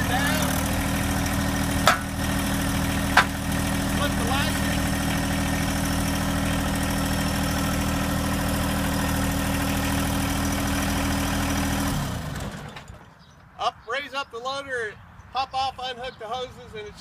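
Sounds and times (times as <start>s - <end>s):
diesel tractor engine idling: 0.0s - 13.3s.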